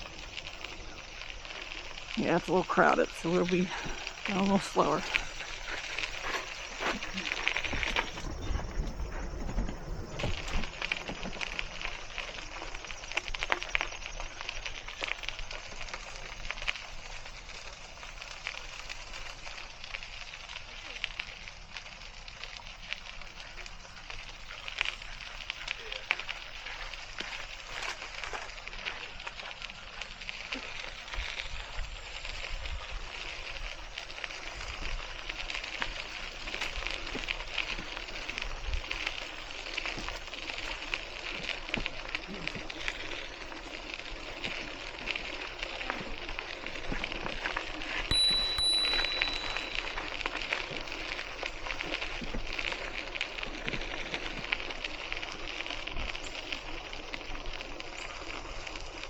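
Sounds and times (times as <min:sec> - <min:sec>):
e-bike wheels rolling on path: 0:00.0 - 0:59.0
high steady tone: 0:48.1 - 0:50.0.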